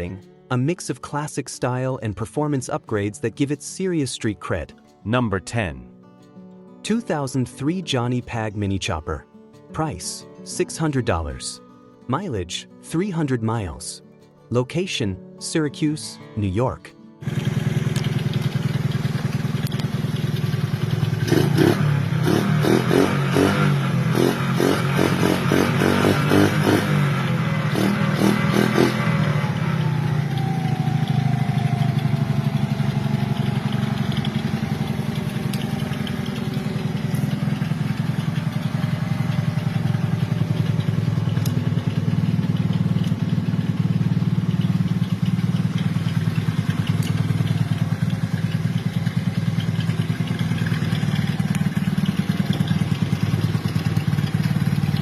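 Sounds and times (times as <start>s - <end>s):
motorcycle engine idling and revving: 17.2s - 55.0s.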